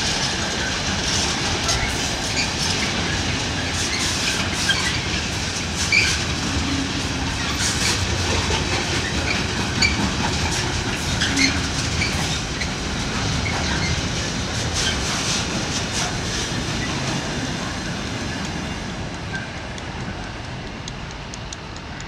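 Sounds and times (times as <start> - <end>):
train wheels rolling: 0.0 - 22.0.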